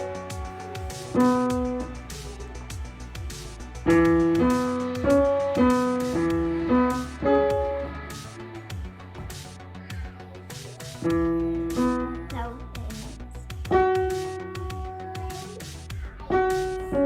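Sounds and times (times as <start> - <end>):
piano chords: 0.0 - 2.0, 3.8 - 8.1
soft beat and bass: 0.0 - 17.0.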